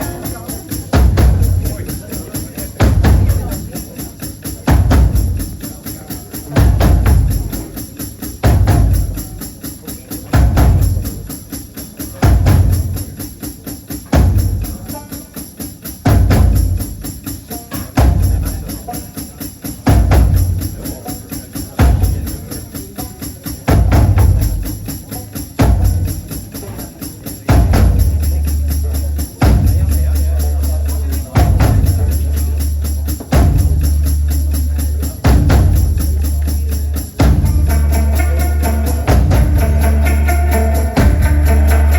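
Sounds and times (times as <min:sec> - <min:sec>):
bass and drum hits: 0:00.0 - 0:02.0, 0:02.8 - 0:03.8, 0:06.5 - 0:07.8, 0:08.4 - 0:09.3, 0:27.5 - 0:41.9
live band playing: 0:00.0 - 0:41.9
tambourine shaking: 0:00.0 - 0:41.9.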